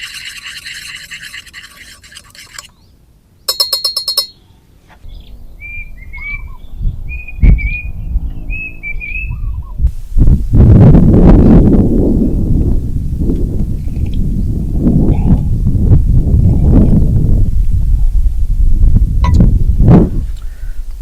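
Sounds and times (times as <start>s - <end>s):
scratching noise: 0.0s - 2.7s
bird whistling phrases: 5.6s - 7.9s, 8.5s - 9.7s.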